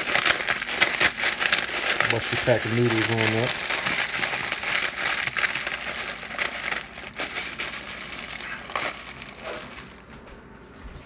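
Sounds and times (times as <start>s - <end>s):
plastic wrapper crinkling: 0.0s - 10.1s
dry noodles crunching: 0.0s - 10.2s.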